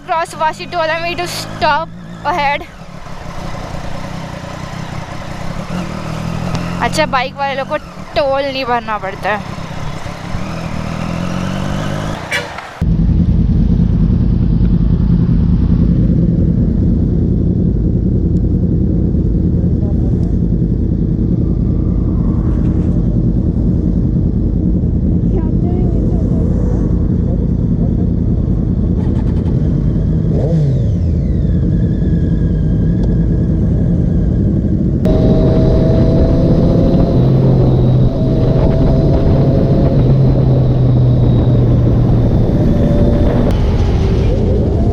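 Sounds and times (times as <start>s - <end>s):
motorcycle engine running: 0.0s - 44.9s
wind on microphone: 20.0s - 30.0s, 32.3s - 44.9s.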